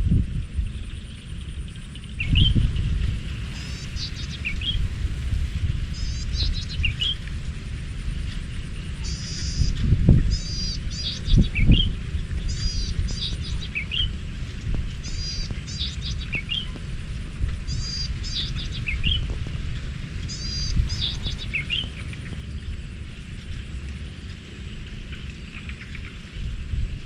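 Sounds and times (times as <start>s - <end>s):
wind rumble on microphone: 0.0s - 27.0s
songbird twittering phrase: 2.0s - 4.9s, 5.8s - 7.2s, 9.0s - 14.2s, 15.0s - 16.8s, 17.6s - 19.4s, 20.2s - 22.4s.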